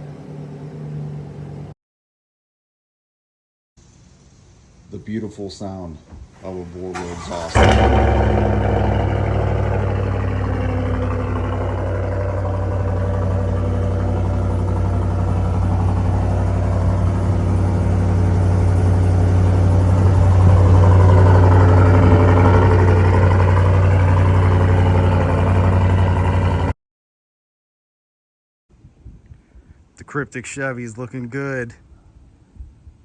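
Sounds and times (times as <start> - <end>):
car engine idling: 6.4 - 26.7.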